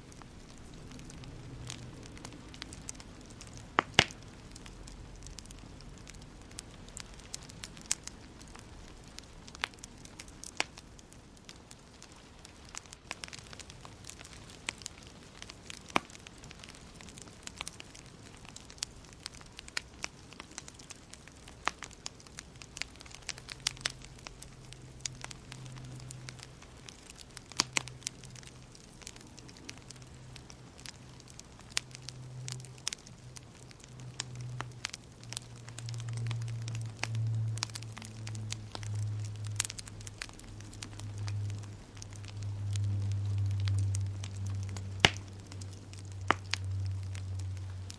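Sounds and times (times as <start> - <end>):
fire pops and snaps: 0.0 - 47.9
wood fire crackling: 0.0 - 47.9
low hum: 23.0 - 47.9.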